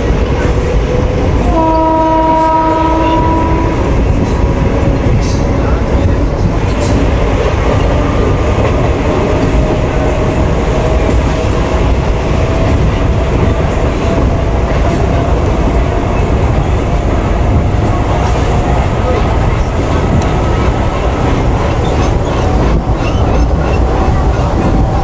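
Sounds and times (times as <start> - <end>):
train rumbling: 0.0 - 25.0
wheels clattering on rails: 3.8 - 25.0.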